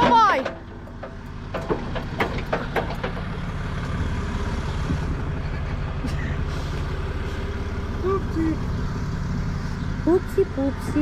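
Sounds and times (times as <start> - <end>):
towing gear knocks and clanks: 0.0 - 6.1
tow truck engine rumbling: 0.0 - 11.0.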